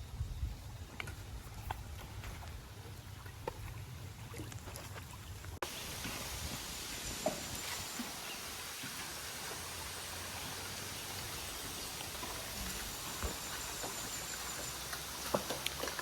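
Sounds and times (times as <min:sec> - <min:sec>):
river hiss: 0:05.6 - 0:16.0.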